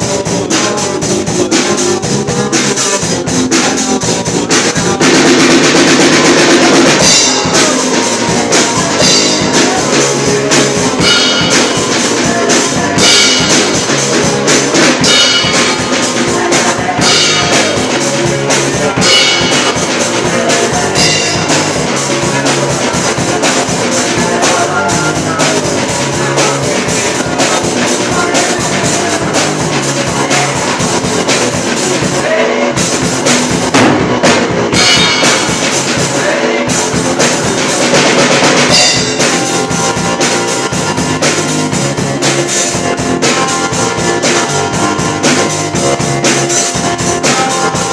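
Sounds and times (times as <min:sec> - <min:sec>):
rock band playing: 0:00.0 - 0:47.9
cymbal crashes: 0:06.6 - 0:08.1, 0:10.8 - 0:12.1, 0:13.0 - 0:14.2, 0:14.8 - 0:16.3, 0:17.0 - 0:18.2, 0:19.0 - 0:20.2, 0:21.0 - 0:21.8, 0:34.8 - 0:36.0, 0:38.7 - 0:40.4.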